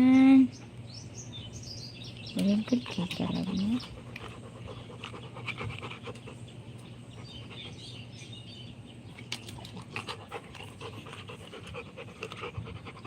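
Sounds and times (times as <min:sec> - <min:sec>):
dog panting: 0:02.6 - 0:08.1, 0:09.7 - 0:13.0.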